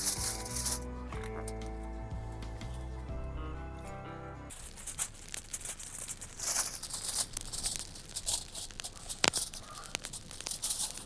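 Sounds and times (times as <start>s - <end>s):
crinkling and rustling: 0.0s - 11.0s
small clicks: 4.5s - 11.0s.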